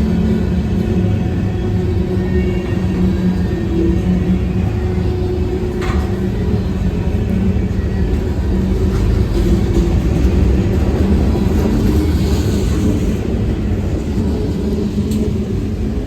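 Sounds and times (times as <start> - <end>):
freight train rumbling: 0.0 - 16.0.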